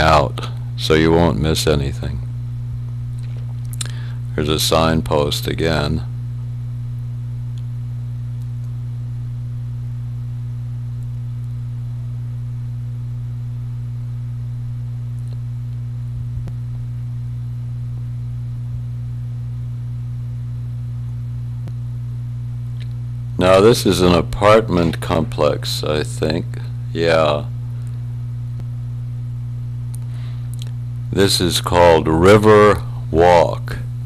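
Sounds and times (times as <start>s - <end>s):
electrical mains hum: 0.0s - 34.0s.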